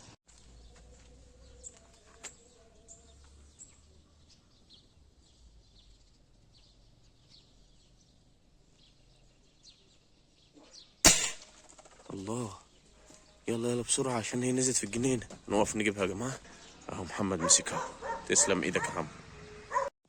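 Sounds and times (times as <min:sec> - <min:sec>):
bird chirps: 0:00.0 - 0:19.9.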